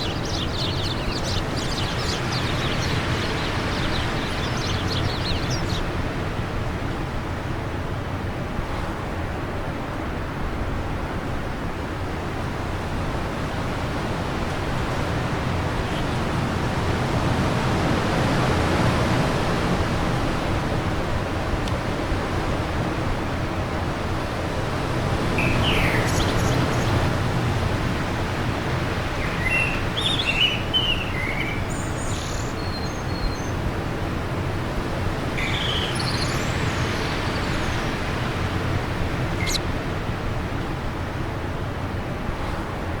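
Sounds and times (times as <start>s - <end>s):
small birds chirping: 0.0s - 6.3s, 15.2s - 17.0s, 25.0s - 39.7s
wind noise: 0.0s - 43.0s.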